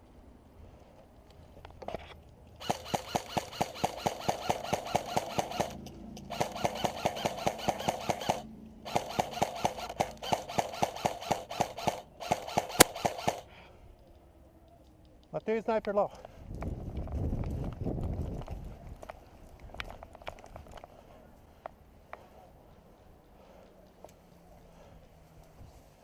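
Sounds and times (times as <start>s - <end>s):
airsoft gun full-auto bursts: 2.6s - 13.6s.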